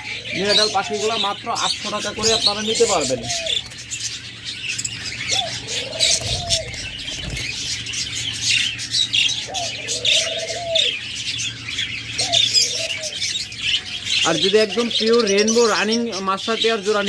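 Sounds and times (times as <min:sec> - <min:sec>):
budgerigars chattering and chirping: 0:00.0 - 0:17.0
dove cooing: 0:02.2 - 0:03.7, 0:05.2 - 0:07.9, 0:09.1 - 0:11.1, 0:12.2 - 0:13.4.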